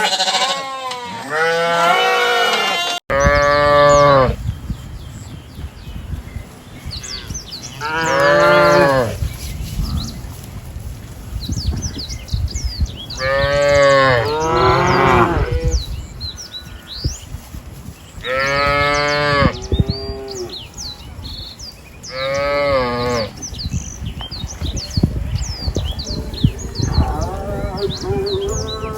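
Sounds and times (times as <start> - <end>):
cows mooing: 0.0 - 4.4, 7.2 - 9.2, 13.2 - 15.8, 18.2 - 20.6, 22.1 - 23.4, 26.3 - 28.9
small birds chirping: 3.1 - 28.9.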